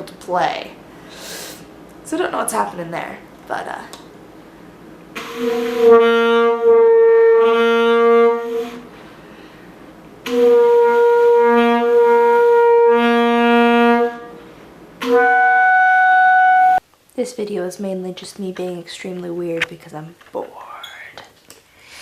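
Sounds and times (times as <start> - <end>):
saxophone long held notes: 5.1 - 9.0, 10.2 - 16.8.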